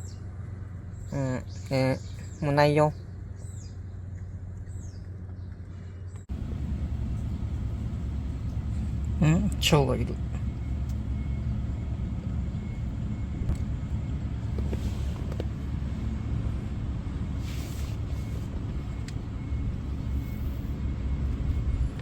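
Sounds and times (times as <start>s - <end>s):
low outdoor rumble: 0.0s - 22.0s
brief hiss: 17.4s - 18.5s.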